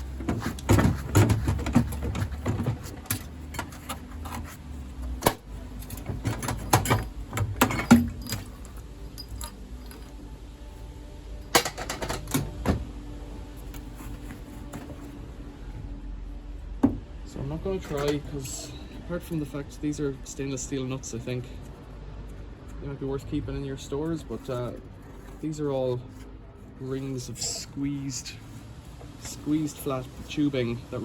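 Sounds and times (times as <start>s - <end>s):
metal parts clattering and clinking: 5.7s - 10.3s, 11.4s - 12.5s.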